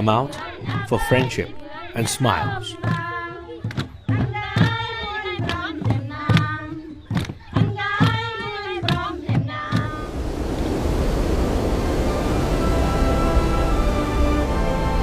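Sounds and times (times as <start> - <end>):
group of voices singing: 0.0 - 6.9
hand claps: 7.1 - 7.4.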